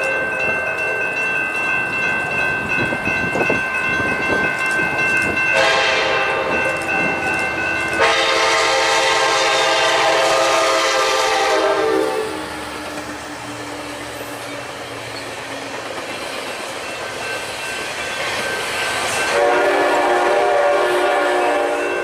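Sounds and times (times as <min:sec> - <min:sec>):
crossing signal bell ringing: 0:00.0 - 0:12.3, 0:16.0 - 0:22.0
train rumble: 0:00.0 - 0:22.0
train horn blasts: 0:05.5 - 0:06.8, 0:08.0 - 0:12.5, 0:19.3 - 0:22.0.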